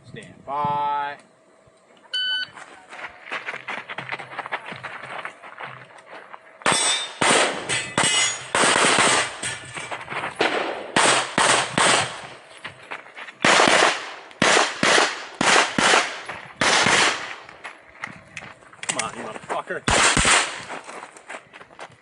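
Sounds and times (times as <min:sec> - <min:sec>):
pistol shots: 0:06.6 - 0:09.5, 0:10.4 - 0:12.3, 0:13.4 - 0:17.5, 0:19.9 - 0:20.7.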